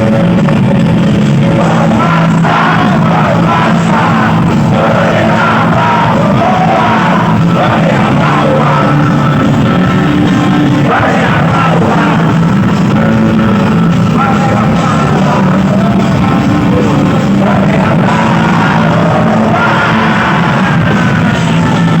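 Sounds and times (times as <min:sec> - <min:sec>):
live rock band playing: 0:00.0 - 0:22.0
voices singing: 0:01.2 - 0:22.0.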